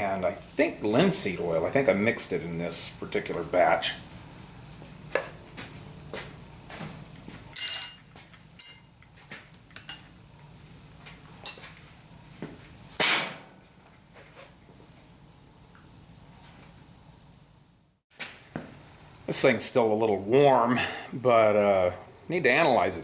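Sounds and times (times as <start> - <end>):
metal hook clinks and knocks: 7.6 - 9.2
sharp ringing metal clinks: 7.6 - 10.2.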